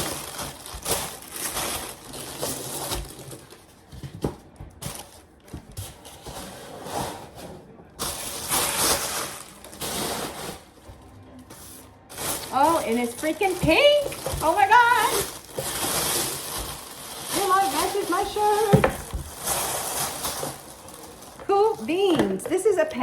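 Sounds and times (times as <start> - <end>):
plastic packaging crinkling: 0.0 - 3.9, 8.0 - 10.8, 12.1 - 23.0.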